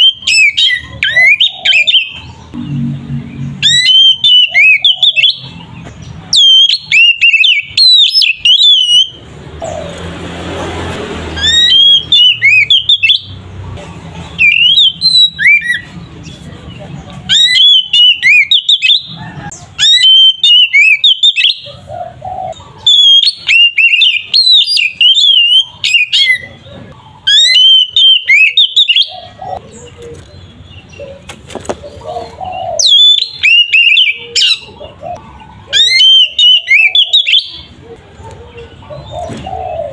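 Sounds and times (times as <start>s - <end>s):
bird singing whistled song: 0.0s - 2.3s, 3.4s - 5.6s, 6.3s - 9.2s, 11.4s - 13.4s, 14.4s - 16.0s, 17.3s - 21.7s, 22.8s - 26.7s, 27.3s - 29.6s, 32.6s - 34.8s, 35.7s - 37.7s.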